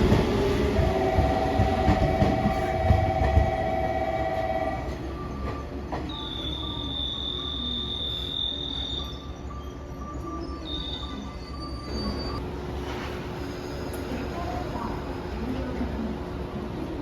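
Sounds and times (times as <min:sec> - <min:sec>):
train rumbling: 0:00.0 - 0:06.9, 0:11.0 - 0:17.0
train wheels squealing: 0:05.2 - 0:12.4.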